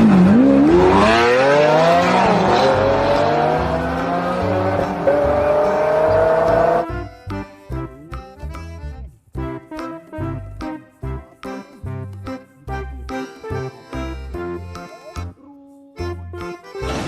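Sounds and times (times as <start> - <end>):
race car engine revving: 0.0 - 6.8
background music with bass: 0.0 - 17.0.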